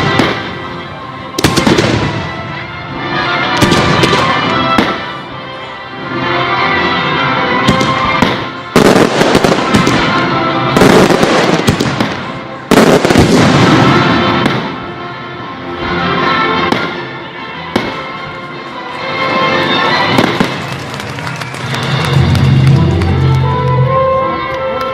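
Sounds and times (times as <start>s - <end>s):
fireworks exploding: 0.0s - 0.8s, 1.4s - 2.6s, 3.4s - 5.2s, 7.6s - 14.8s, 16.6s - 17.0s, 17.7s - 18.2s, 19.1s - 23.3s
music soundtrack: 0.0s - 24.9s.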